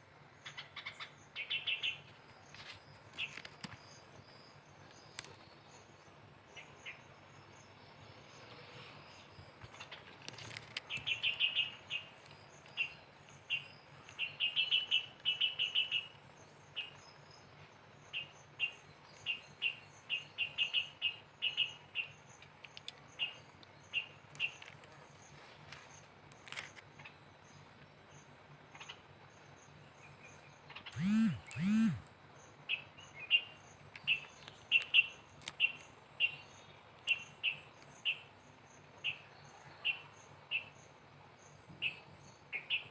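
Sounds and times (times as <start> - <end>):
bird chirping: 0.4 - 42.9
cricket trill: 30.8 - 36.4
short arching pitch sounds: 30.9 - 32.1.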